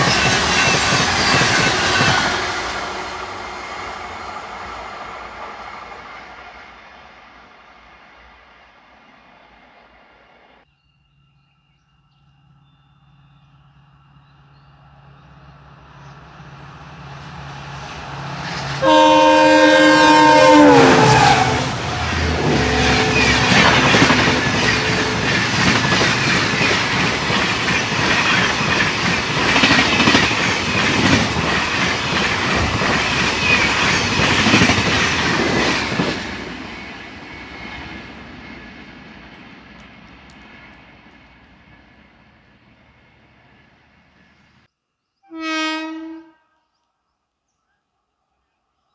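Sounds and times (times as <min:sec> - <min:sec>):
train wheels clattering over rails: 0:00.0 - 0:06.2, 0:20.7 - 0:41.9
train horn chord: 0:18.7 - 0:27.5, 0:45.3 - 0:46.8.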